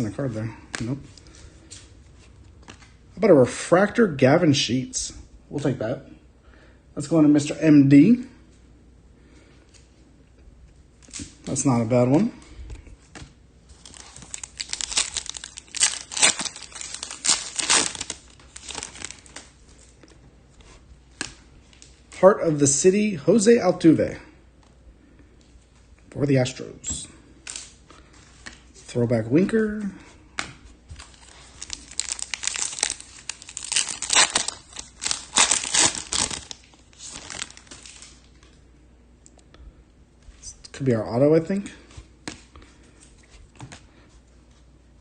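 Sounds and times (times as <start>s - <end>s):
foil wrapper crinkling and tearing: 13.7s - 19.6s, 31.0s - 38.4s.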